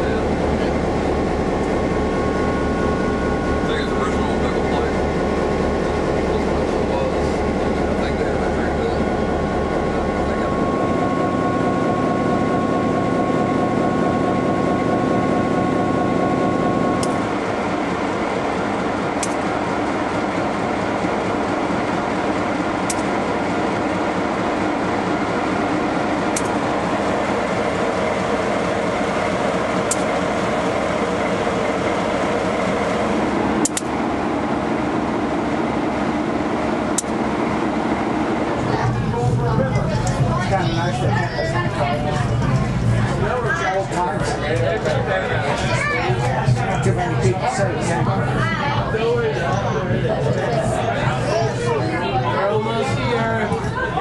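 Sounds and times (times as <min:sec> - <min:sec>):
diesel train running: 0:00.0 - 0:54.0
steady whine: 0:00.0 - 0:54.0
sharp click: 0:19.2 - 0:19.4, 0:29.9 - 0:30.1, 0:33.6 - 0:33.9.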